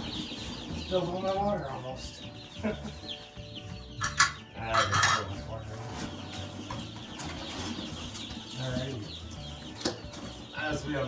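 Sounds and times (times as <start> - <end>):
chicks peeping: 0.0 - 11.0
cardboard boxes rustling and scraping: 5.8 - 9.4.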